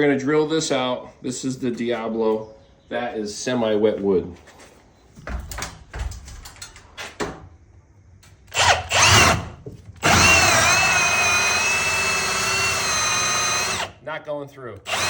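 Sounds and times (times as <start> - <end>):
knocks: 5.2 - 7.4
power drill whining: 8.5 - 14.0, 14.8 - 15.0.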